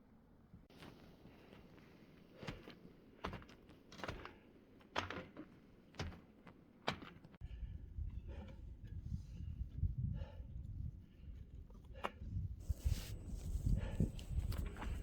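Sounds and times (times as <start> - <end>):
footsteps crunching on snow: 12.6 - 15.0.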